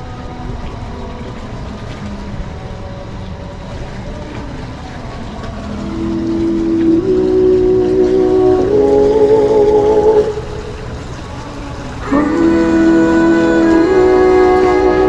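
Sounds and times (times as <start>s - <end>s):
faint music: 0.0s - 15.0s
boat engine running: 5.0s - 14.6s.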